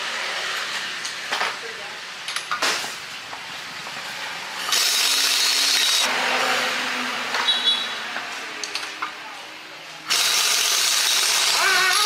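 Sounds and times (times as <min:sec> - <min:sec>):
power tool running with harsh hiss: 0:10.1 - 0:12.0.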